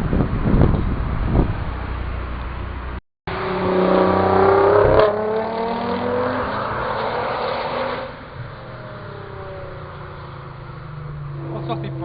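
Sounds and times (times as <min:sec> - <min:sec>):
sports car engine accelerating: 0:03.3 - 0:12.0.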